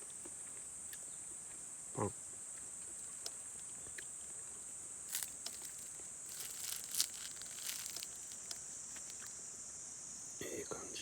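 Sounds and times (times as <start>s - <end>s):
night insects droning: 4.1s - 11.0s
sharp crackles and clicks: 5.1s - 9.3s.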